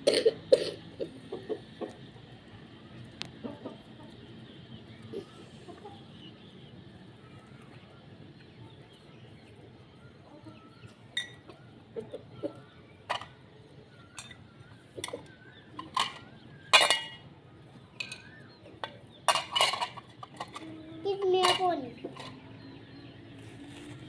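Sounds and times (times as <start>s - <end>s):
chickens clucking softly: 1.0s - 17.0s.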